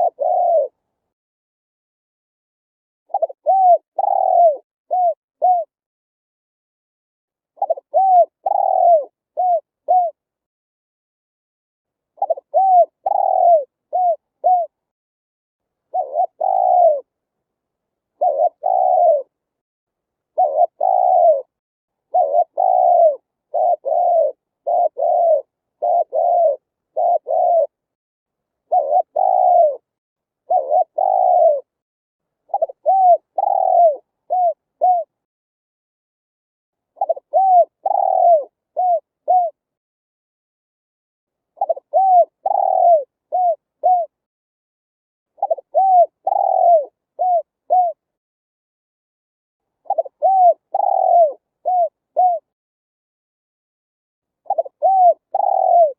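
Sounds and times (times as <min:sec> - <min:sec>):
dove cooing: 0:00.0 - 0:00.8, 0:03.1 - 0:05.7, 0:07.6 - 0:10.2, 0:12.2 - 0:14.8, 0:15.9 - 0:17.1, 0:18.2 - 0:19.3, 0:20.4 - 0:27.8, 0:28.7 - 0:29.9, 0:30.5 - 0:31.7, 0:32.5 - 0:35.2, 0:37.0 - 0:39.6, 0:41.6 - 0:44.2, 0:45.4 - 0:48.0, 0:49.8 - 0:52.5, 0:54.5 - 0:55.9.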